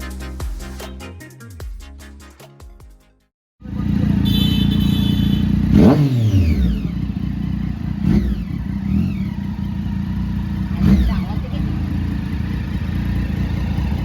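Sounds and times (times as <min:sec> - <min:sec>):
motorcycle engine running: 0:03.6 - 0:14.0.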